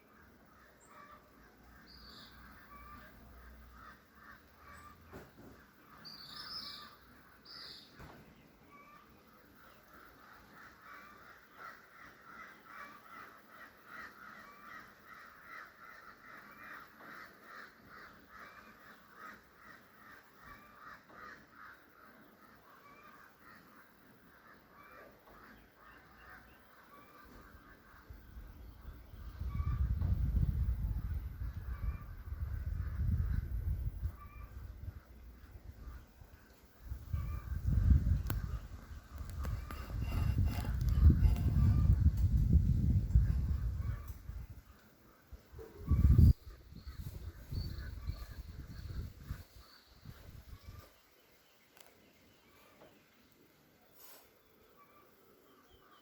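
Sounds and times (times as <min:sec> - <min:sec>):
rapidly repeated animal calls: 0:34.2 - 0:42.1.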